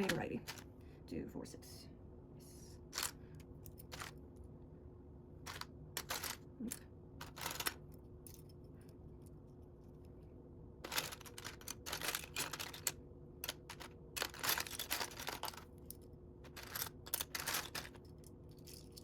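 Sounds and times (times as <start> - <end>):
plastic bricks clicking and rattling: 0.0 - 0.6, 3.0 - 3.2, 3.8 - 4.2, 5.5 - 7.8, 10.8 - 19.0
faint hum: 0.0 - 19.0.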